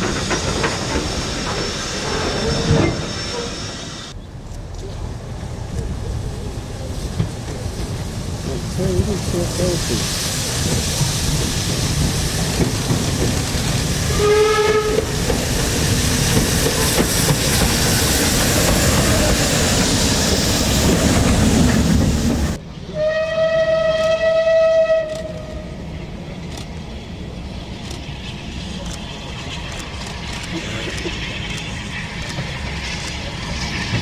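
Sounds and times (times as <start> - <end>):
steam locomotive rushing past: 0.0 - 4.2, 4.9 - 34.0
steam whistle: 14.1 - 15.1, 23.0 - 25.6.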